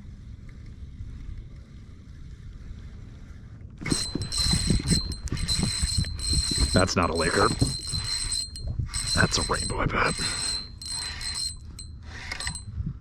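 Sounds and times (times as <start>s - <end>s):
faint low rumble: 0.0s - 13.0s
fishing reel whining: 3.8s - 12.8s.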